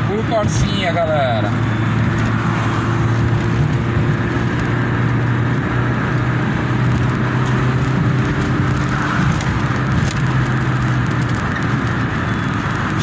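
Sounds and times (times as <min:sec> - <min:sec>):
car engine running steadily: 0:00.0 - 0:13.0
road and wind noise: 0:00.0 - 0:13.0.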